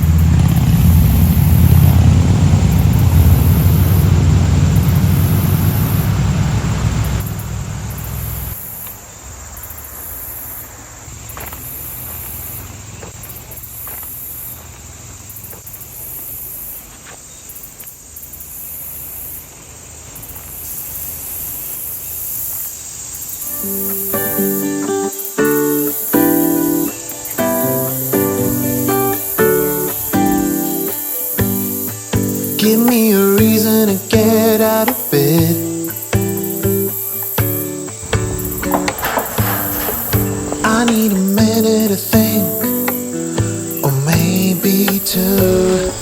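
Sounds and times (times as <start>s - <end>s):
loud low rumble: 0.0s - 8.0s
crickets chirping: 0.0s - 46.0s.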